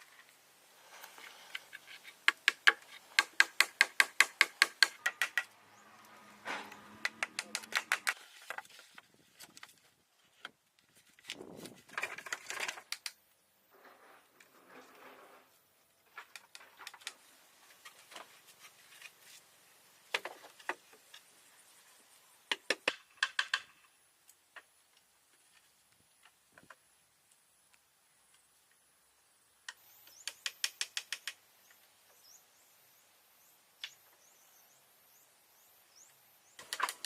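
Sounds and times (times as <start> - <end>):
sharp taps and knocks: 2.2 - 5.5, 6.5 - 8.6.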